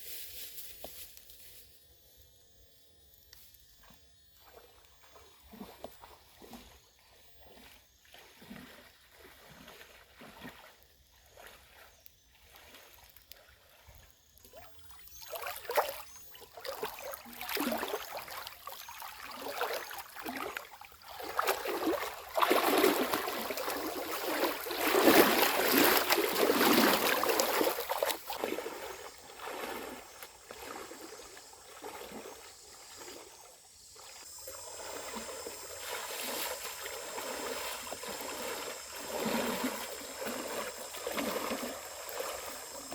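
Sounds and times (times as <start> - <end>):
water splashing and trickling: 4.4 - 42.9.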